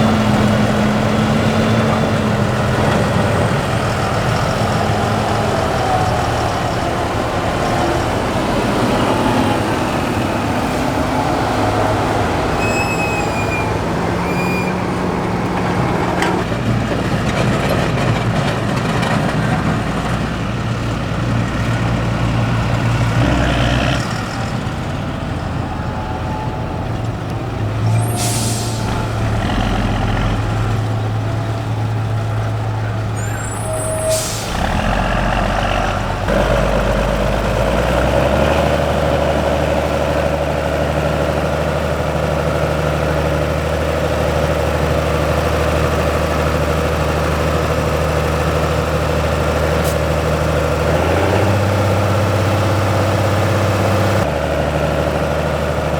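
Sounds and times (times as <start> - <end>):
tractor diesel engine: 0.0 - 55.9
air-brake hisses: 27.9 - 29.0, 33.3 - 34.6.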